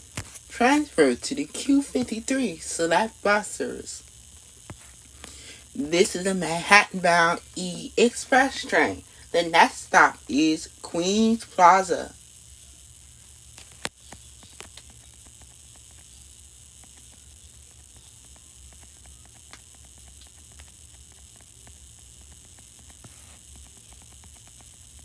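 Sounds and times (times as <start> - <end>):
low hum: 0.0 - 12.2
faint static hiss: 0.0 - 25.0
small clicks: 13.5 - 25.0.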